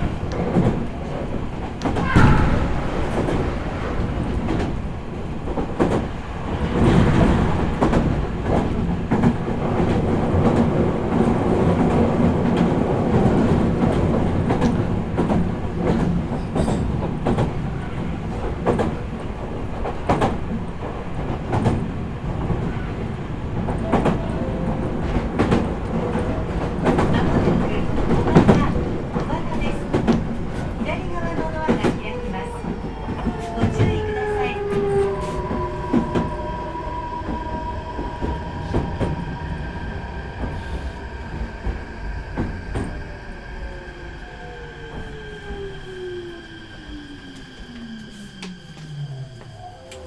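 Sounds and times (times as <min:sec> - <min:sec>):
train wheels rumbling: 0:00.0 - 0:50.0.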